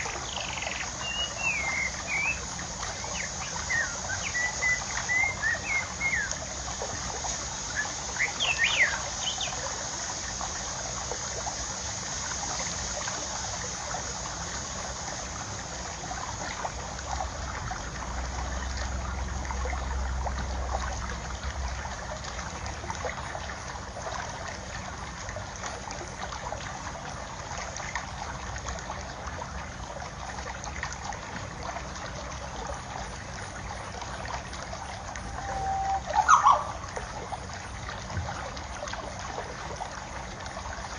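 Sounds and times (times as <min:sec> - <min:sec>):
water trickling: 0:00.0 - 0:40.9
bird chirps: 0:08.2 - 0:09.6, 0:35.4 - 0:36.8.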